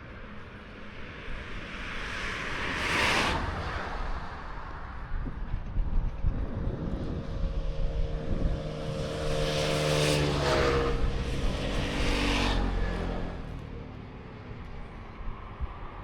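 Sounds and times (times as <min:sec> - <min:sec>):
vehicle engine passing by: 0:06.3 - 0:15.7.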